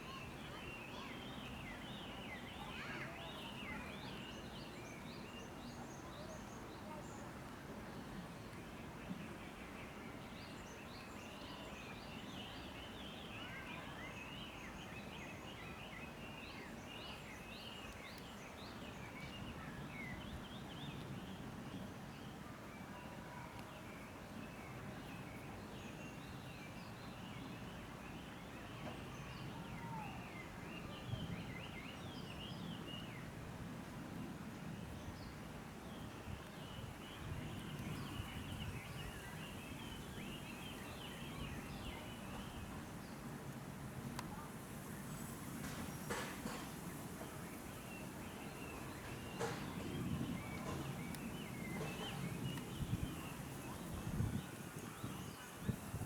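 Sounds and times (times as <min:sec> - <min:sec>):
small birds chirping: 0:44.1 - 0:56.0.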